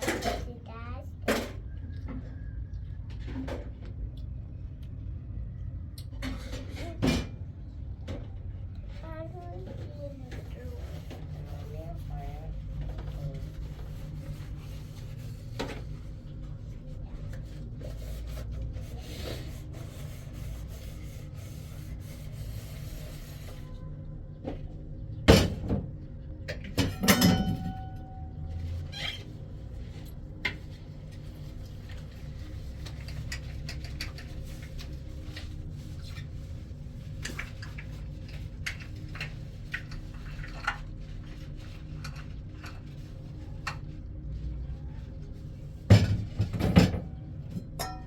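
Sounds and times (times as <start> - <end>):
low steady hum: 0.0 - 48.0
sharp knocks and clinks: 26.8 - 28.3, 47.8 - 48.0.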